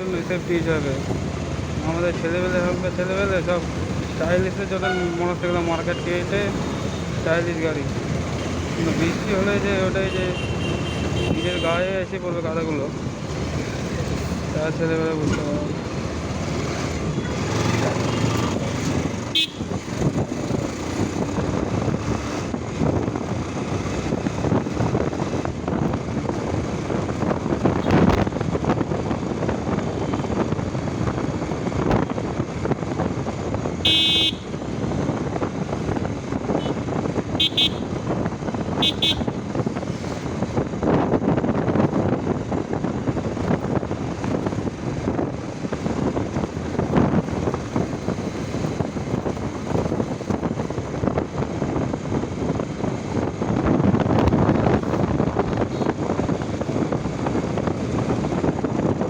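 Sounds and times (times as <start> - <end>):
motorcycle wind and road noise: 0.0 - 59.0
vehicle horns honking: 10.0 - 11.8, 19.3 - 19.8, 33.8 - 34.6, 36.5 - 38.0, 38.8 - 39.4.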